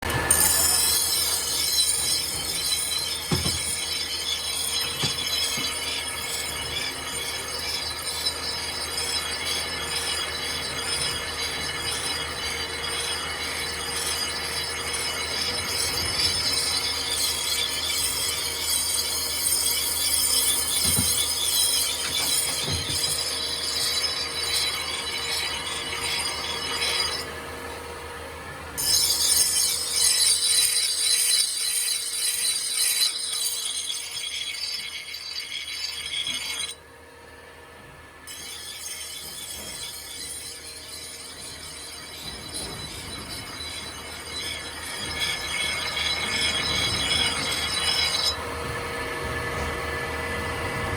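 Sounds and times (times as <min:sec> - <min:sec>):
metal scraping on knife blade: 0:28.8 - 0:36.8, 0:38.3 - 0:48.4.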